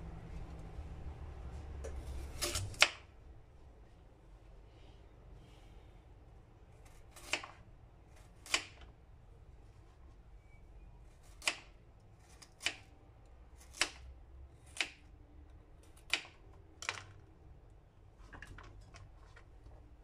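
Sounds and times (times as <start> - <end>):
knife chopping carrot on board: 11.3 - 11.7, 12.5 - 12.9, 13.6 - 15.0.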